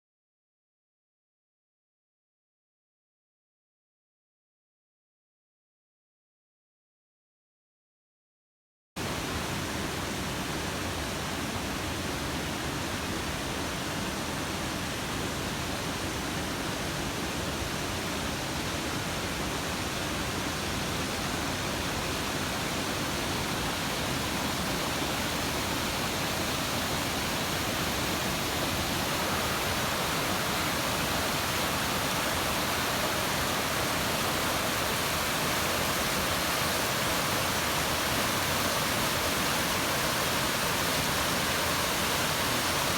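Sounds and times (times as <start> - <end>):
stream water rushing: 9.0 - 42.9.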